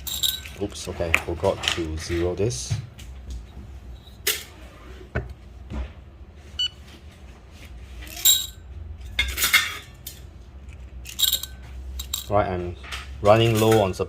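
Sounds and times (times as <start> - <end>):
kitchen scale beep: 6.6 - 6.8.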